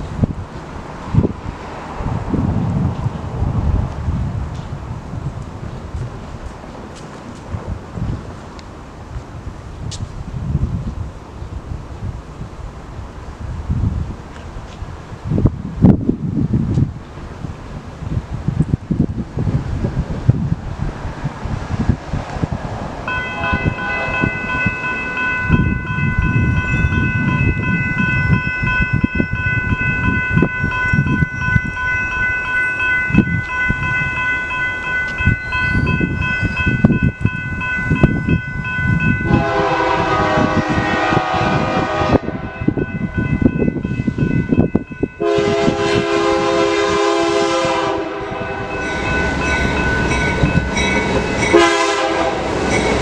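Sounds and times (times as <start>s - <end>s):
train wheels rumbling on rails: 0.0s - 53.0s
locomotive horn blasts: 23.1s - 29.2s, 39.0s - 43.1s, 45.2s - 49.6s, 51.4s - 52.7s
high ringing tone: 23.1s - 40.0s, 42.4s - 45.6s, 48.4s - 51.8s.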